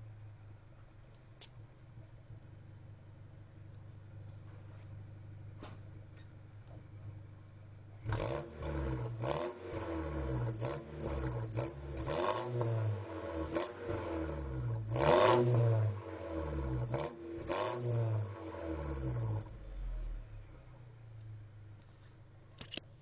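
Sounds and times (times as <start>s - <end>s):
car engine revving: 7.9s - 21.1s.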